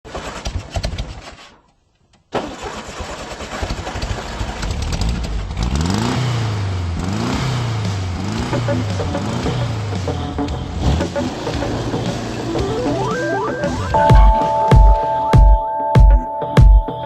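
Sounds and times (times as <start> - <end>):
engine starting and revving: 2.3 - 14.6.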